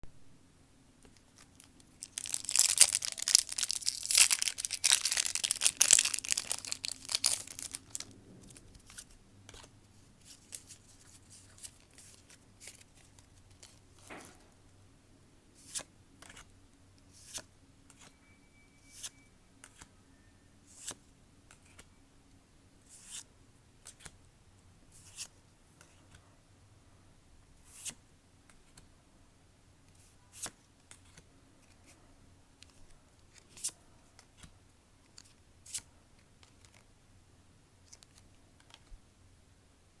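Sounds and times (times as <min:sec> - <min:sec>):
faint low hum: 0:00.1 - 0:40.0
cards and foil pack rustling: 0:01.4 - 0:13.8.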